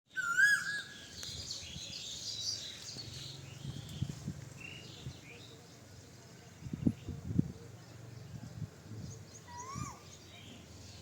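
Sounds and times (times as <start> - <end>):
bird whistled call: 0.1 - 1.2, 9.5 - 10.2
birds chirping and trilling: 0.1 - 11.0.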